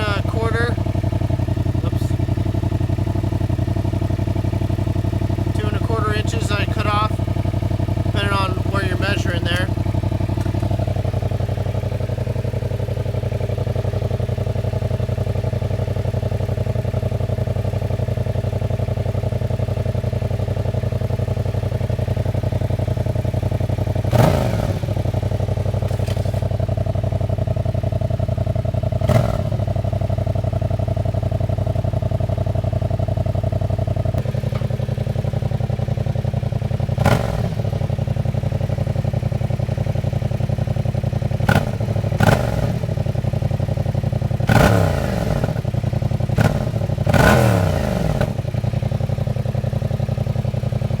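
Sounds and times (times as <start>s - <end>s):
motorcycle engine idling: 0.0s - 51.0s
motorcycle throttle blips: 0.0s - 51.0s.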